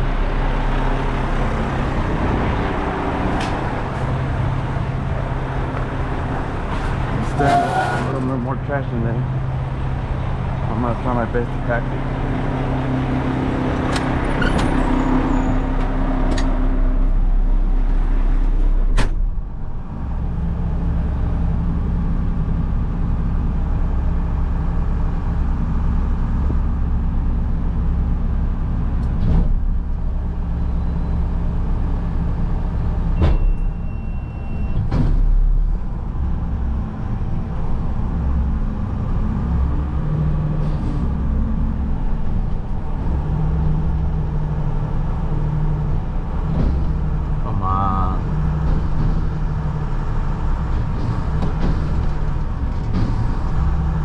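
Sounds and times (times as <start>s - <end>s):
garbage truck diesel engine: 0.0s - 54.0s
hydraulic packer compacting: 48.3s - 54.0s.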